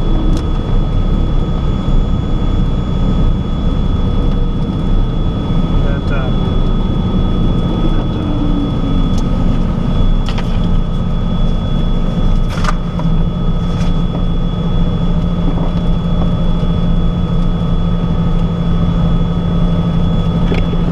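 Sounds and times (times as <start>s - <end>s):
lower tone falling in pitch: 0.0s - 12.5s
aircraft piston engines humming: 0.0s - 20.9s
thin steady whine: 0.0s - 20.9s.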